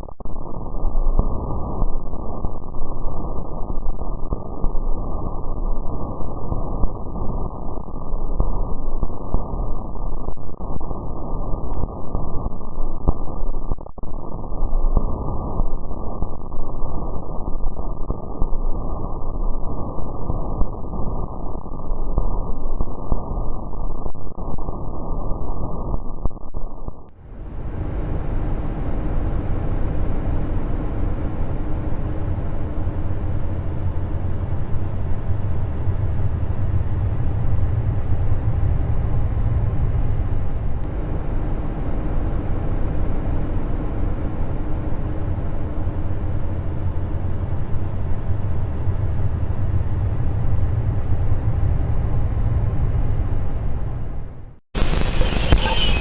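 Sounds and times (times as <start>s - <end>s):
faint hum: 0.0s - 56.0s
dense rumbling drone: 27.1s - 56.0s.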